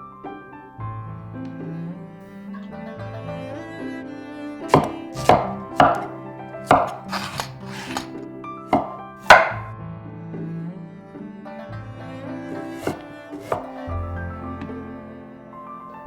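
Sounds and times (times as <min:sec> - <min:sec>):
soft string music: 0:00.0 - 0:16.0
knife chopping on cutting board: 0:04.7 - 0:06.1, 0:06.7 - 0:08.1, 0:08.8 - 0:09.7, 0:12.6 - 0:13.9.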